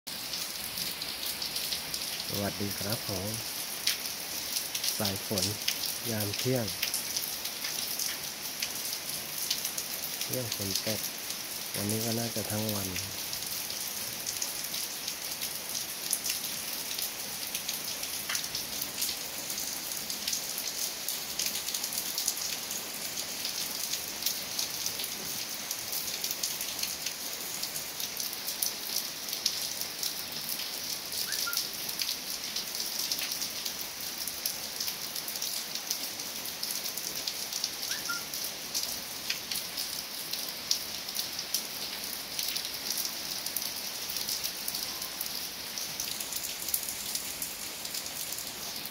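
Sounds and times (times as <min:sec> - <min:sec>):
rain falling on leaves and gravel: 0:00.1 - 0:48.9
faint short chirps: 0:31.3 - 0:31.6, 0:37.9 - 0:38.3.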